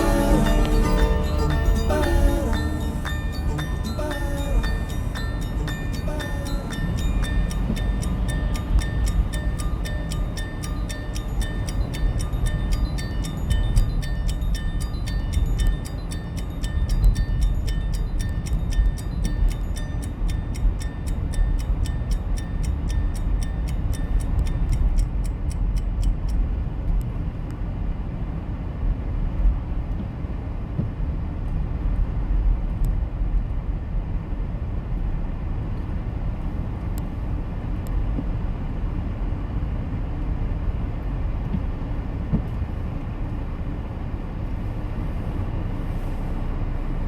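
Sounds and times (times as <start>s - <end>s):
fast even ticking: 0.0s - 26.4s
car engine and tyre rumble: 6.8s - 47.0s.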